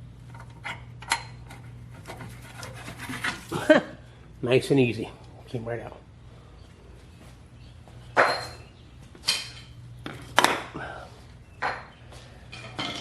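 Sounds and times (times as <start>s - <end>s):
metal clanking on metal: 11.7s - 13.0s.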